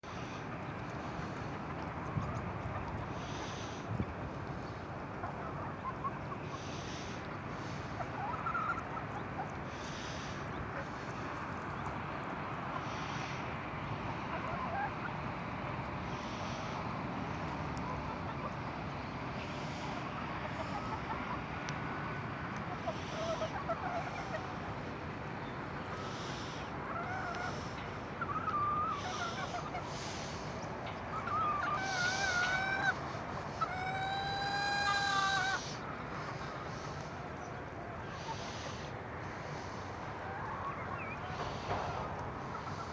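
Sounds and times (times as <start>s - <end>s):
steady background hiss: 9.6s - 42.9s
birds calling: 22.5s - 42.9s.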